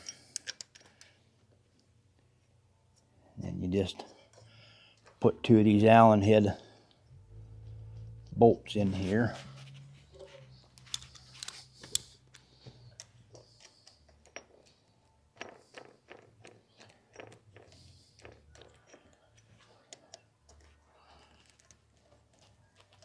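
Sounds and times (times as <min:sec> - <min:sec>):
metal clicks and taps: 0:00.3 - 0:01.2.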